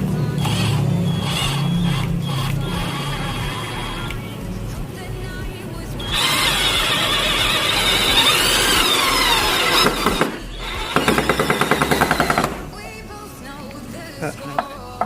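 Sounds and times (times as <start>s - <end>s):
cordless drill squealing: 0.4s - 4.2s, 6.0s - 12.8s.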